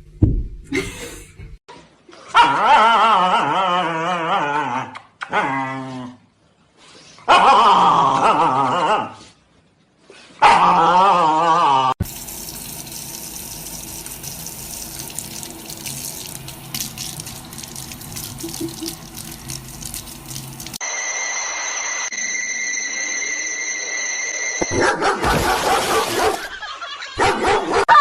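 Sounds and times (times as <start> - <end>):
running water splashing: 12.0 - 20.8.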